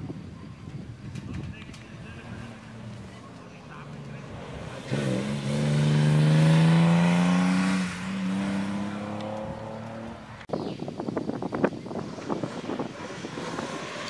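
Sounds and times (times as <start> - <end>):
rough uneven rumble: 0.0 - 14.0
racing car engine passing: 2.2 - 10.5, 12.0 - 14.0.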